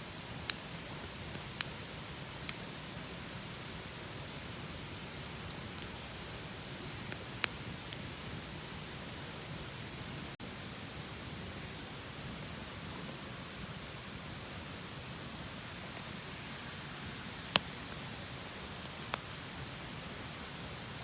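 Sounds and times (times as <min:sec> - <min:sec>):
campfire hissing: 0:00.0 - 0:21.0
fire crackling pops: 0:00.2 - 0:03.1, 0:04.4 - 0:11.0, 0:14.1 - 0:21.0.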